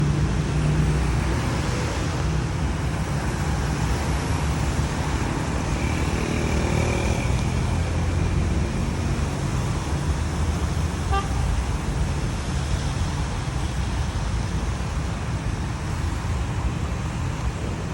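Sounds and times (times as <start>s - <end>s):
engines rumbling: 0.0s - 17.9s
tyres hissing on wet road: 0.0s - 17.9s
car horn toot: 11.1s - 11.4s.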